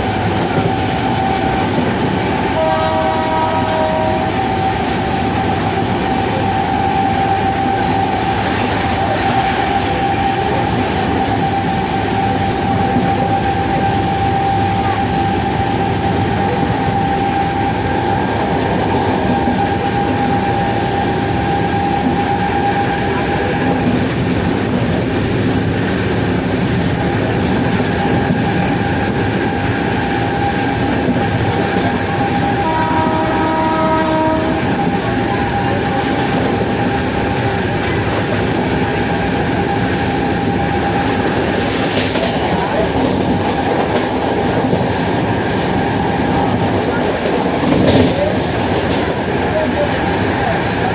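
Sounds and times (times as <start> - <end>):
wheels rumbling on track: 0.0 - 50.9.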